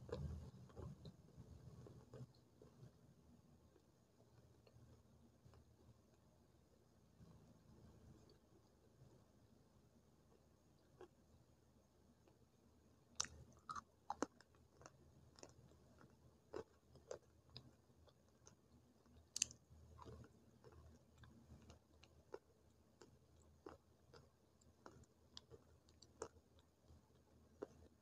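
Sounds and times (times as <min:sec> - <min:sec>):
chewing crunches: 0:13.2 - 0:28.0.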